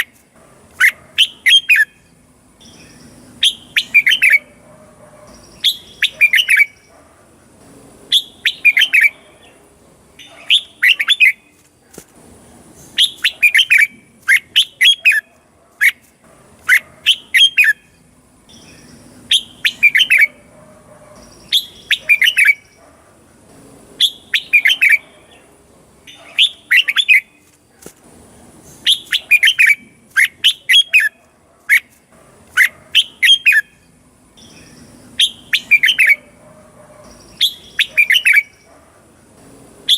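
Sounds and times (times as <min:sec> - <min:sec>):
bird singing whistled phrases: 0:02.6 - 0:04.5, 0:05.4 - 0:06.8, 0:08.1 - 0:09.2, 0:13.0 - 0:15.2, 0:18.5 - 0:20.4, 0:21.4 - 0:22.8, 0:24.0 - 0:25.0, 0:28.8 - 0:31.1, 0:33.0 - 0:33.7, 0:34.4 - 0:36.2, 0:37.3 - 0:38.6.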